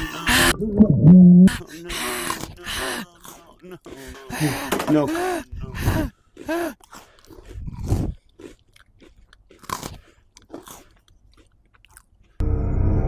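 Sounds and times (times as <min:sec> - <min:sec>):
cookie crunching and chewing: 0:01.8 - 0:05.4, 0:06.0 - 0:12.4.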